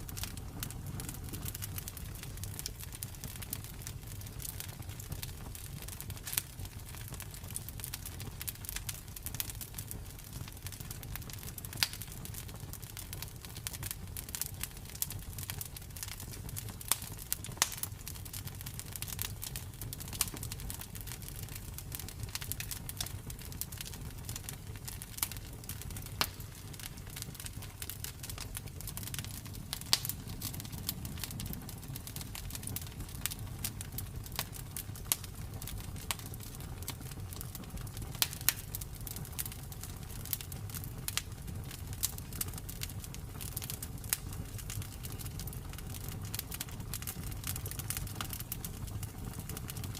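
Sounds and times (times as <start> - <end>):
campfire crackling and popping: 0.0 - 49.9
low fire rumble: 0.0 - 49.9.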